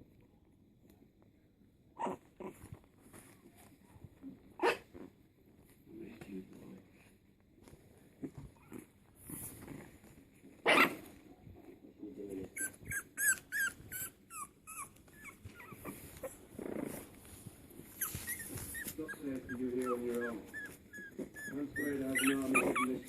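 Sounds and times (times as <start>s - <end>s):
puppies whimpering and yipping: 12.5s - 16.5s, 17.8s - 23.0s.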